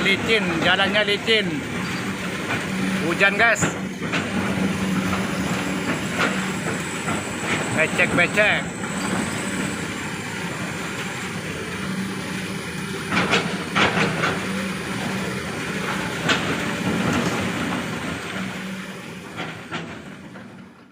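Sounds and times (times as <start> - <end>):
dump truck engine running: 0.0 - 20.9
sharp knocks and clunks: 1.8 - 8.4, 13.0 - 15.2.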